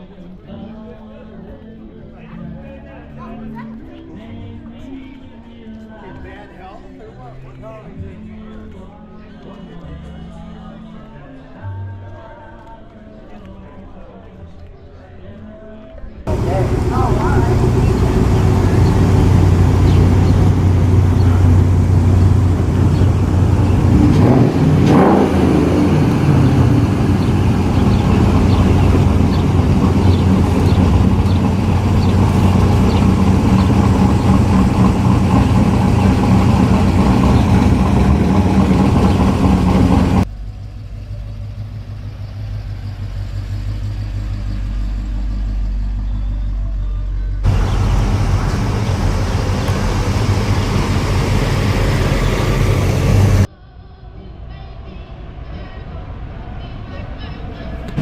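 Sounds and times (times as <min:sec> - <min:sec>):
car engines running: 0:16.3 - 0:53.5
low rumble: 0:16.3 - 0:53.5.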